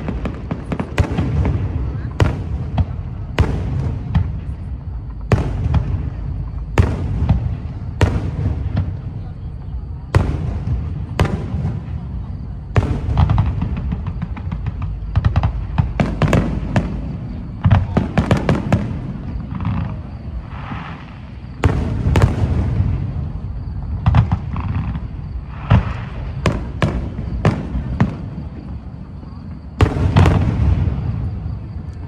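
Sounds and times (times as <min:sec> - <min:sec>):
continuous low rumble: 0:00.0 - 0:32.0
fireworks crackling: 0:00.0 - 0:32.0
firework shells bursting: 0:12.8 - 0:19.9.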